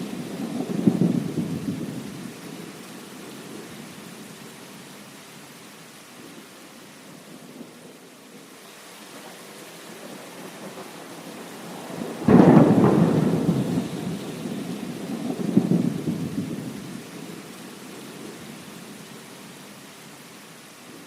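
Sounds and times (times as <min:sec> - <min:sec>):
thunder rumbling: 0:00.0 - 0:03.7, 0:10.0 - 0:18.4
steady rain: 0:00.0 - 0:21.0.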